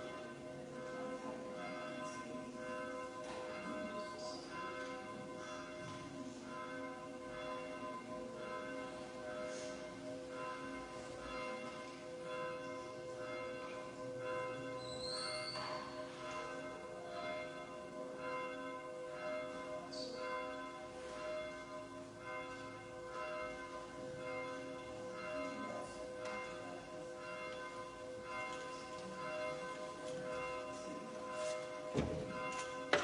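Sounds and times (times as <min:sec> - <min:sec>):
church bells ringing: 0:00.0 - 0:33.0.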